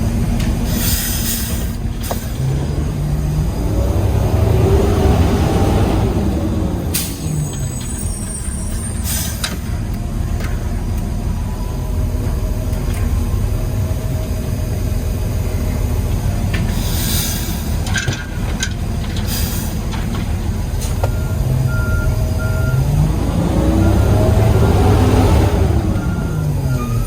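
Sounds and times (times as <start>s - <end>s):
diesel engine running: 0.0s - 27.0s
air hissing: 16.7s - 17.8s
reversing beeper: 21.1s - 27.0s.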